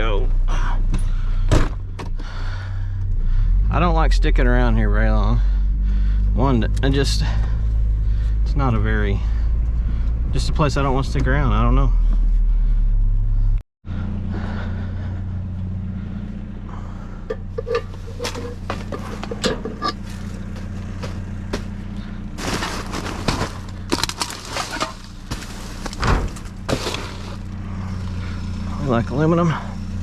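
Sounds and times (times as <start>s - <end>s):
vehicle engine idling: 0.0s - 30.0s
objects being handled and moved: 17.3s - 21.7s, 22.4s - 27.4s.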